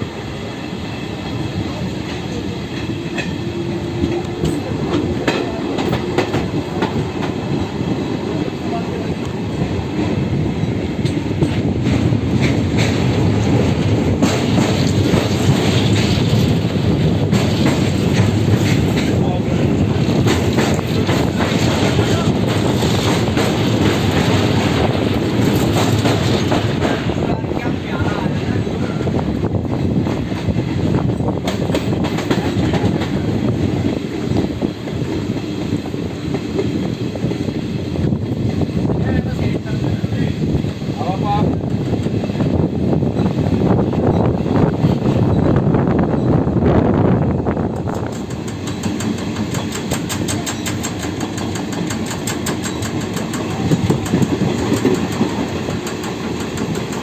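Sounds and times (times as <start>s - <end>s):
train coach rumbling on track: 0.0s - 57.0s
wheels clacking over rail joints: 1.2s - 8.5s, 9.2s - 28.5s, 47.6s - 57.0s.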